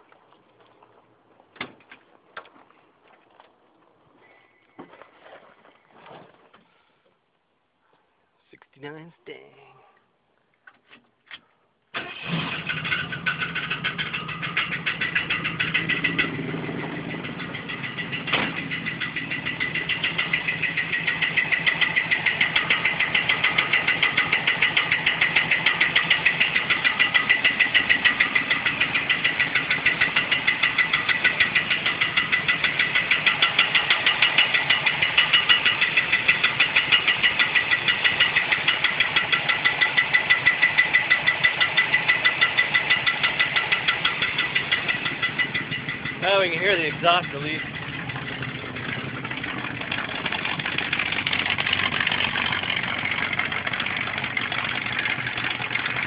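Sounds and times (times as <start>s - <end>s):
car engine starting and running: 11.9s - 56.0s
rapid even engine knocking: 12.8s - 56.0s.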